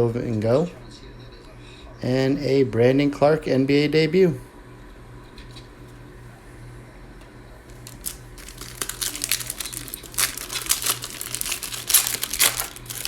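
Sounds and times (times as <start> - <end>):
plastic wrapper crinkling and tearing: 7.7 - 13.0.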